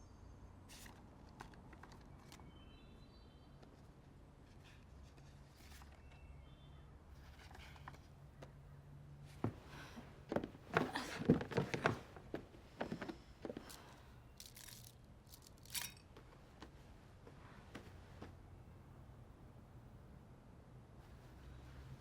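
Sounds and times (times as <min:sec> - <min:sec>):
rustling and scraping: 0:04.4 - 0:06.3, 0:07.1 - 0:08.5, 0:09.3 - 0:18.4.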